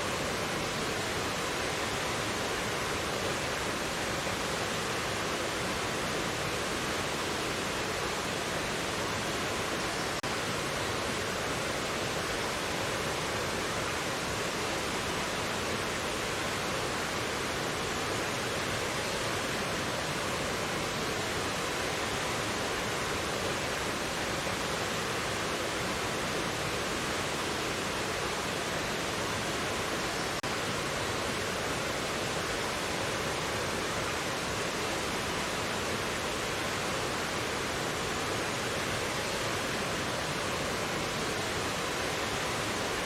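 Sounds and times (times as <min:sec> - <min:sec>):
stream water rushing: 0:00.0 - 0:43.0.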